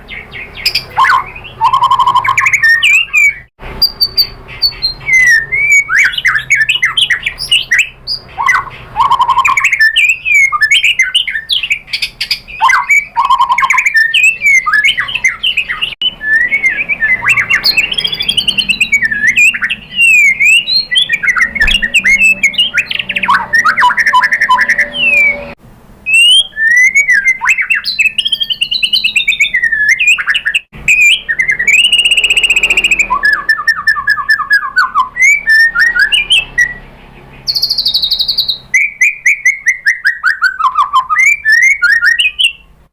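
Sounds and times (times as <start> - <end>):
songbird singing varied whistles: 0.3 - 36.8, 37.4 - 42.7.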